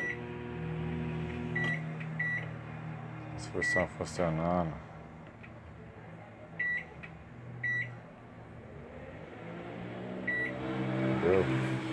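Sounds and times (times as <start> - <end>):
microwave oven humming: 0.0 - 3.9.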